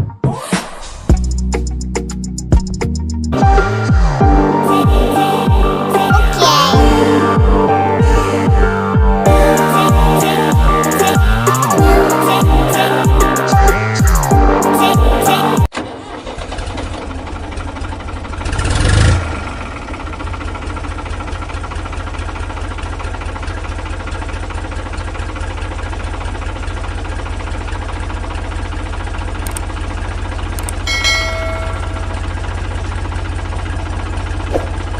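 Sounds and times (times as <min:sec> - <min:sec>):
short high tone: 0:06.0 - 0:07.3, 0:30.8 - 0:32.5
engine idling: 0:15.8 - 0:34.9.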